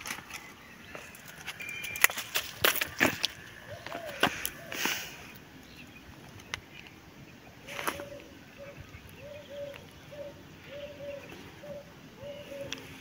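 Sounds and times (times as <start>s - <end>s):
bird calling in low notes: 3.6s - 4.8s, 7.6s - 13.0s.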